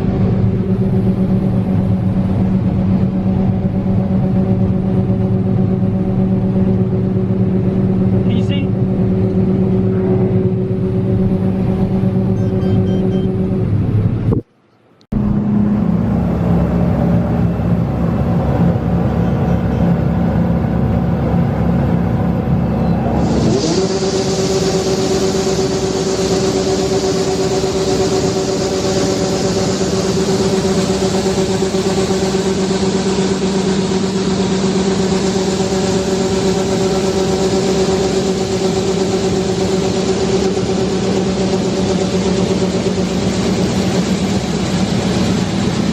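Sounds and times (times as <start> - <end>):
heavy machinery engine running: 0.0 - 45.9
hiss: 23.2 - 29.6.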